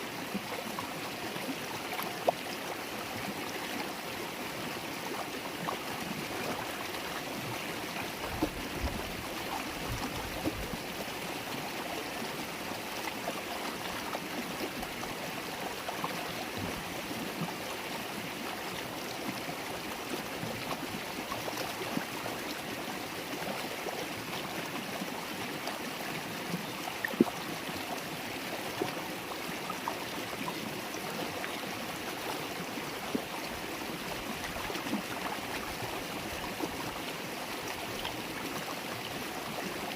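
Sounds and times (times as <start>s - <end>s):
river water babbling: 0.0s - 39.9s.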